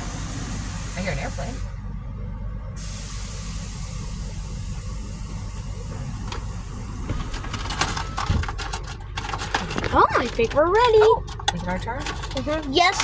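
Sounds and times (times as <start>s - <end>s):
car engine idling: 0.0s - 13.0s
high hiss: 2.8s - 7.1s.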